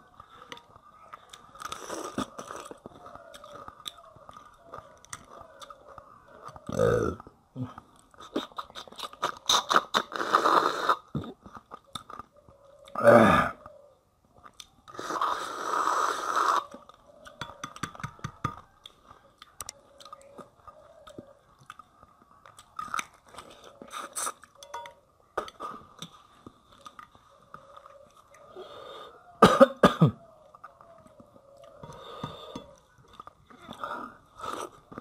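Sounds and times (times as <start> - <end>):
chewing with crunches: 0.0 - 29.4, 30.2 - 35.0
person slurping food: 9.1 - 11.2, 15.0 - 16.8, 33.8 - 35.0.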